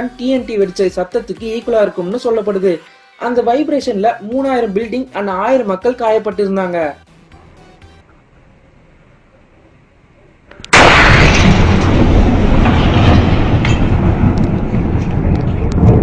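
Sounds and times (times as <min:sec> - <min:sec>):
sharp cracks: 0:10.5 - 0:16.0
sustained rumble: 0:10.7 - 0:16.0
very loud boom: 0:10.7 - 0:16.0.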